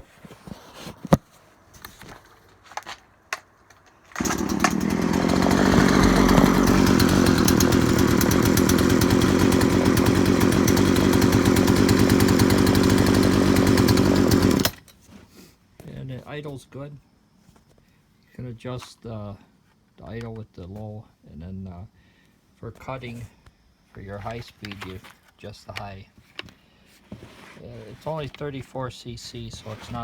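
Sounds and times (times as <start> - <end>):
chainsaw engine idling: 4.2 - 14.8.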